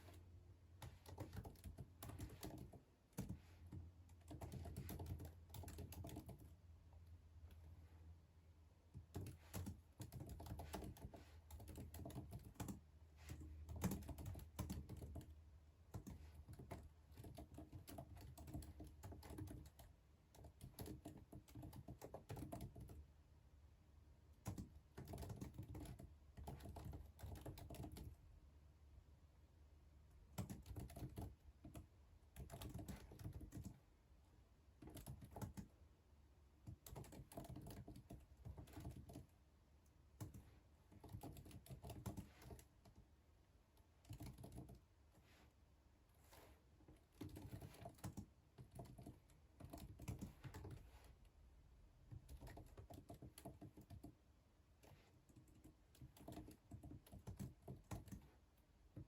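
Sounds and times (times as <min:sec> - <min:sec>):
typing on computer keyboard: 0:00.8 - 0:06.6, 0:08.9 - 0:23.1, 0:24.4 - 0:28.2, 0:30.3 - 0:33.8, 0:34.8 - 0:35.8, 0:36.6 - 0:39.3, 0:40.2 - 0:43.1, 0:43.8 - 0:44.9, 0:47.0 - 0:50.8, 0:52.1 - 0:54.2, 0:54.8 - 0:58.3.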